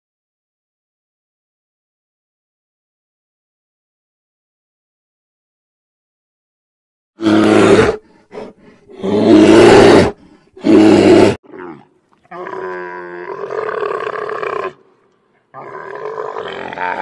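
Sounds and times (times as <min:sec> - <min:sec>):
big cat roaring: 0:07.2 - 0:14.8, 0:15.5 - 0:17.0.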